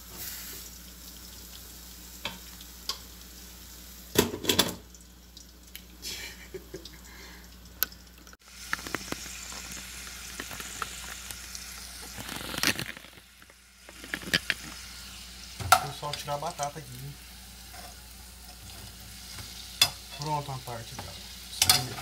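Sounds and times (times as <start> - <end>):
steaks sizzling in a frying pan: 0.0 - 4.9, 8.4 - 22.0
chips frying in lard: 0.0 - 22.0
pan and utensil knocks: 4.2 - 4.8.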